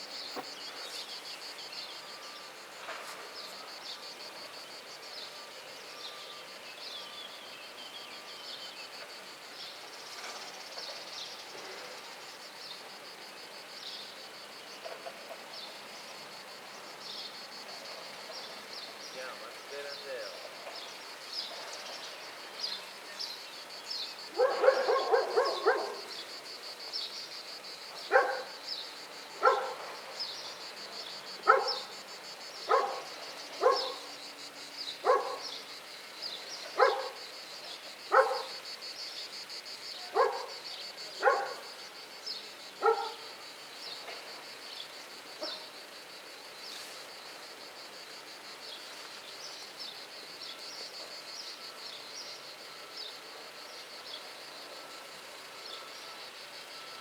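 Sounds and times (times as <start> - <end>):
dog barking: 24.4 - 26.1, 28.1 - 28.5, 29.4 - 29.8, 31.4 - 31.9, 32.7 - 34.1, 35.0 - 35.5, 36.8 - 37.2, 38.1 - 38.6, 40.1 - 40.6, 41.2 - 41.7, 42.8 - 43.3, 45.4 - 45.6.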